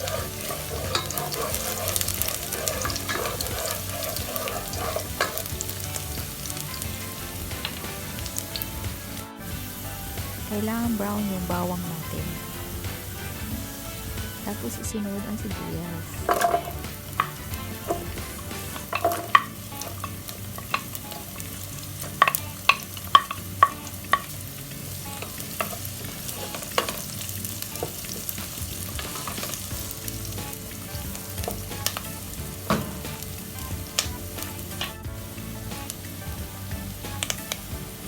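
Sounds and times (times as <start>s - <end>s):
utensil scraping and knocking pan: 0.0s - 9.0s, 16.1s - 24.3s, 25.2s - 35.0s
garlic and onion sizzling in oil: 0.0s - 38.0s.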